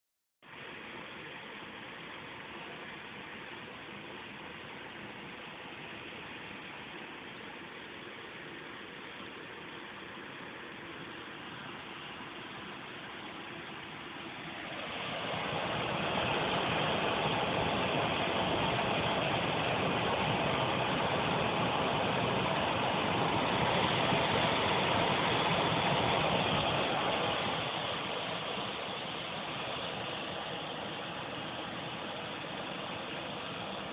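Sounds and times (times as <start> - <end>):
gas furnace rushing: 13.9 - 33.9.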